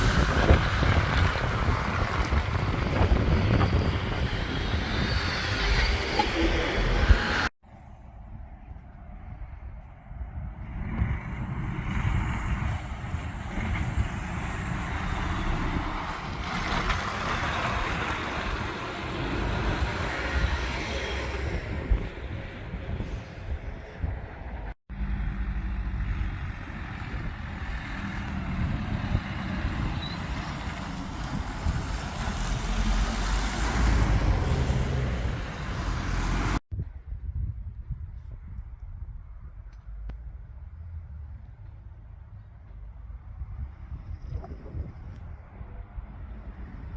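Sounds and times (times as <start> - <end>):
heavy truck driving past: 11.5 - 23.0, 24.9 - 36.6.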